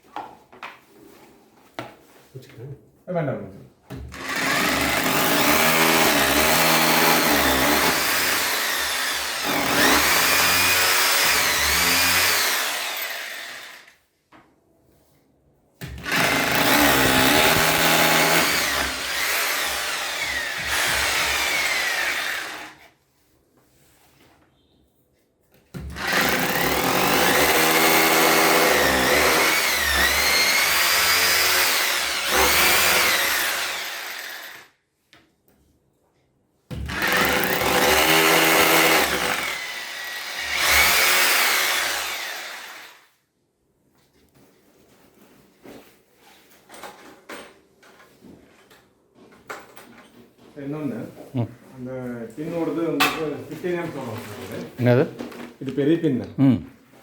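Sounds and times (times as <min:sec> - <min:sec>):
electric drill boring into wall: 0:04.1 - 0:14.0, 0:15.9 - 0:22.9, 0:25.9 - 0:34.7, 0:36.8 - 0:43.1.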